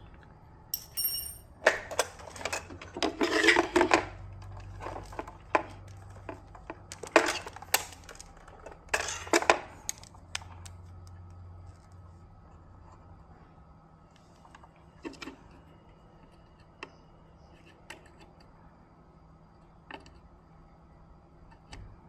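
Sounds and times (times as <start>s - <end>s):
faint low hum: 0.0s - 22.0s
small hard objects handled: 4.6s - 10.9s.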